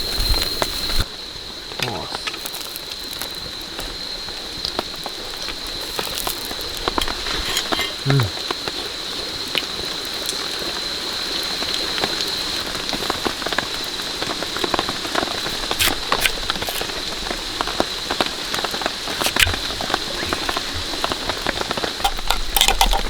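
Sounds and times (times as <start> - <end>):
steady rain falling: 0.0 - 23.0
raindrops tapping: 12.0 - 23.0.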